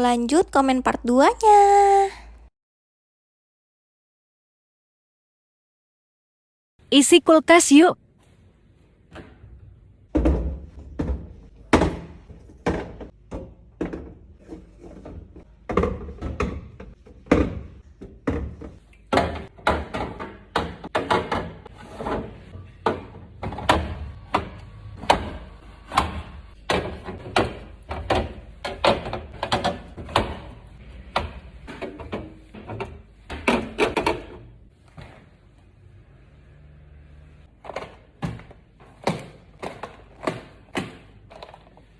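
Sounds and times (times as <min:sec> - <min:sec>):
containers knocking and clunking: 0:10.1 - 0:34.7.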